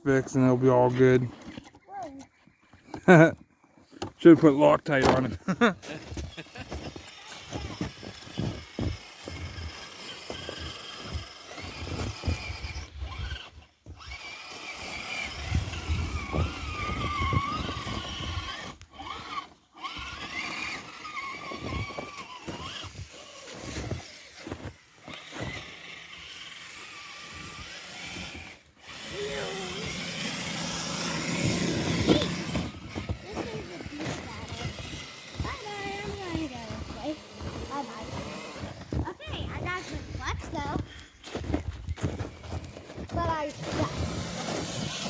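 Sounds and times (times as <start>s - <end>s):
clicks and knocks on rough ground: 0.9s - 4.3s, 5.0s - 29.1s, 29.8s - 45.0s
small electric motor whining: 4.0s - 45.0s.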